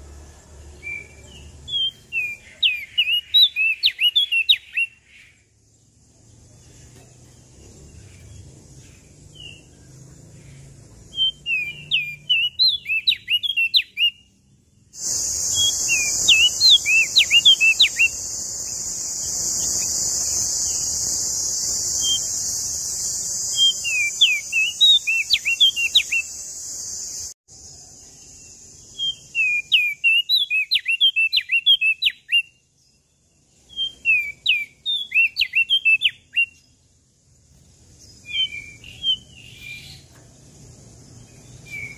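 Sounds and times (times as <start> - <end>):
songbird chirping whistles: 0.8 - 5.4, 11.1 - 14.4, 15.0 - 27.2, 28.2 - 32.7, 33.6 - 36.7, 38.2 - 40.2, 41.3 - 41.9
loud steady high hiss: 15.0 - 29.5.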